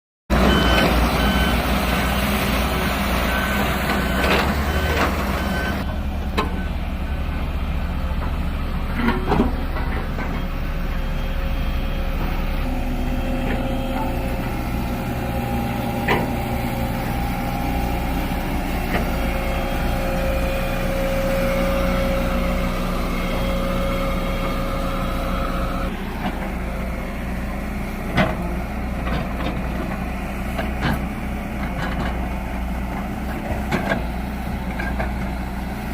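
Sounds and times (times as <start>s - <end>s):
heavy vehicle engine whine: 0.3s - 35.9s
reversing alarm beeping: 0.4s - 5.9s.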